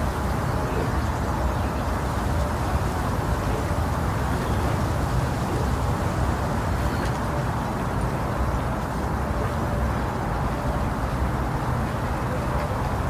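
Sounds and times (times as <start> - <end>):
deep rushing white noise: 0.0 - 13.0.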